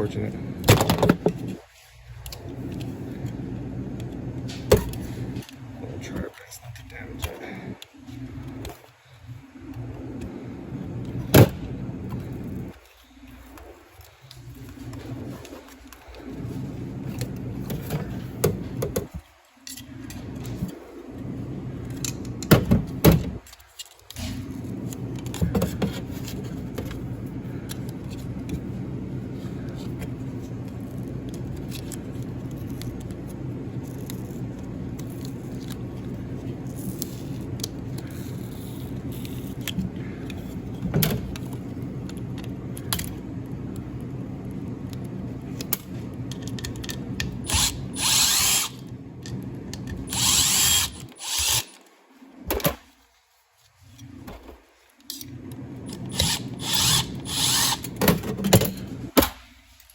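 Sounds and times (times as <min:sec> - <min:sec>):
tool clicks and rattles: 0:45.7 - 0:51.8, 0:55.9 - 0:59.2
hissing whirs: 0:47.4 - 0:48.9, 0:50.0 - 0:51.9, 0:55.9 - 0:58.0
small electric motor running: 0:47.4 - 0:48.9, 0:50.1 - 0:51.8, 0:55.9 - 0:58.0.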